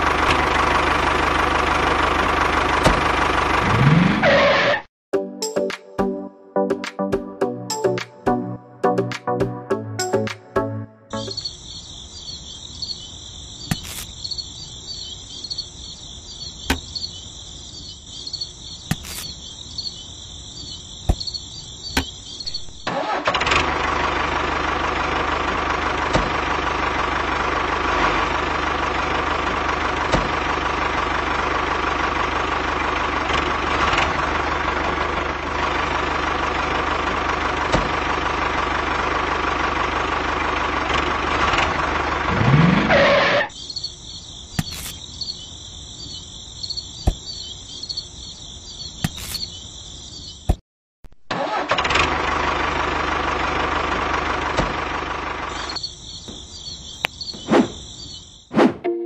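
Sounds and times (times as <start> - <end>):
small tractor engine running: 0.0 - 4.8, 20.6 - 43.5, 51.3 - 57.0
high pulsing chirr: 11.1 - 22.8, 55.5 - 58.5.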